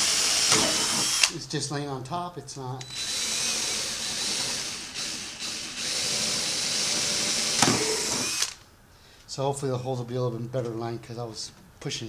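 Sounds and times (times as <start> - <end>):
cordless drill boring plastic: 0.0 - 1.4, 2.8 - 8.6.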